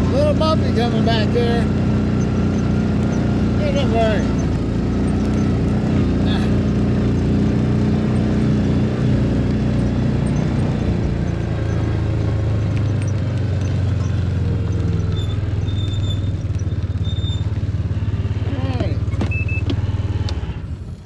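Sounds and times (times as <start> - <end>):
farm vehicle engine running: 0.0 - 21.0.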